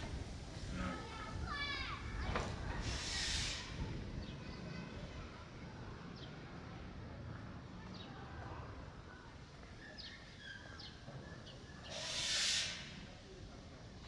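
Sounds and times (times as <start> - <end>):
low outdoor rumble: 0.0 - 9.8
loud hiss: 2.7 - 3.8, 11.9 - 13.1.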